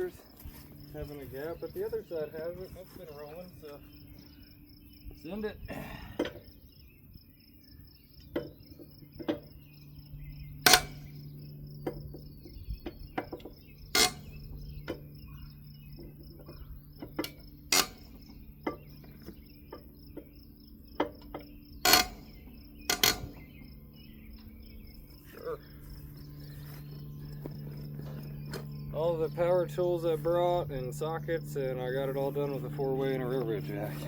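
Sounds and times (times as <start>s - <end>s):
crickets chirping: 0.0s - 34.0s
hand tools clanking on metal: 10.6s - 11.2s, 12.9s - 15.0s, 16.0s - 20.3s, 21.0s - 23.5s.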